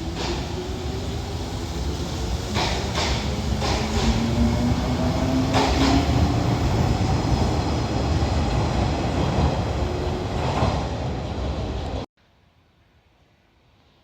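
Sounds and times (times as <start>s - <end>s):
train rumbling on rails: 0.0s - 12.1s
rail clicks: 2.4s - 7.6s.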